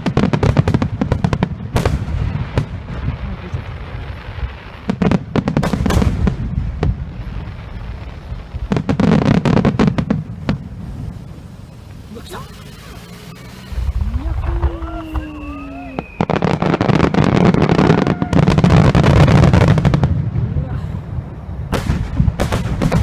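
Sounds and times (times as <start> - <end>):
fireworks bursting and crackling: 0.0 - 23.0
low rumble: 10.2 - 16.4.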